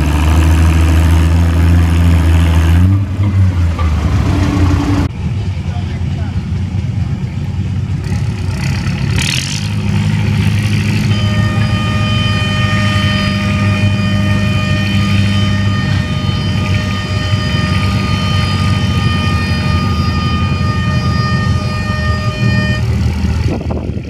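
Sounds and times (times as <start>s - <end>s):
tractor engine running: 0.0s - 24.0s
high-pitched whine: 9.6s - 23.8s.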